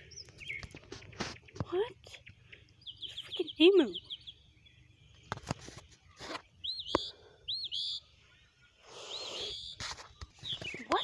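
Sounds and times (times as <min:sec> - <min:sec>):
songbird chirping: 0:00.0 - 0:11.0
brief rustle: 0:05.2 - 0:06.5, 0:09.8 - 0:11.0.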